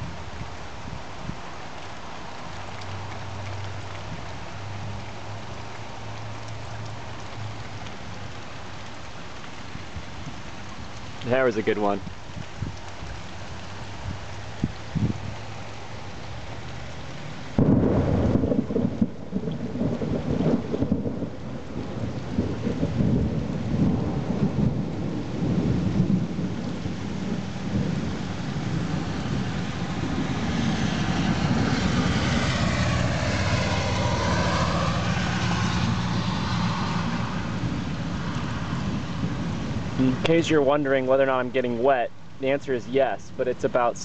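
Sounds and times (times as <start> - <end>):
steady rain: 0.0 - 44.0
thunder clap rumbling: 17.5 - 41.5.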